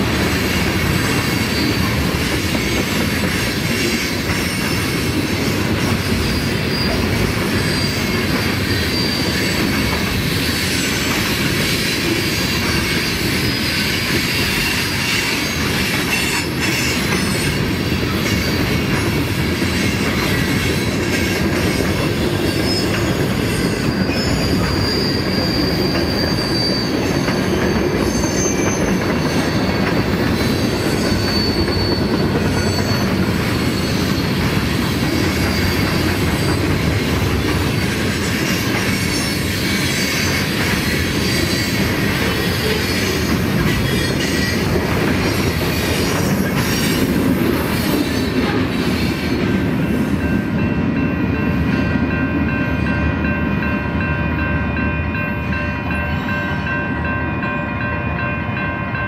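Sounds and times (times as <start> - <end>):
freight train wheels rumbling: 0.0 - 59.0
high wheel squeal: 1.0 - 2.8, 6.1 - 36.6.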